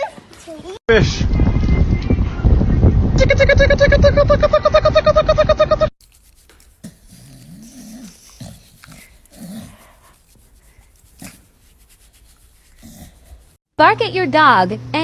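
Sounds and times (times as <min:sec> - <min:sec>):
dog growling: 0:06.0 - 0:13.6.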